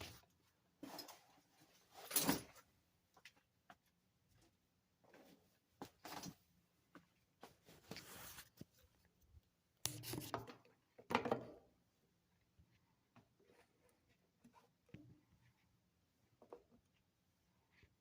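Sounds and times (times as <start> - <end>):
objects rustling and scraping: 7.4 - 8.9, 9.9 - 10.7.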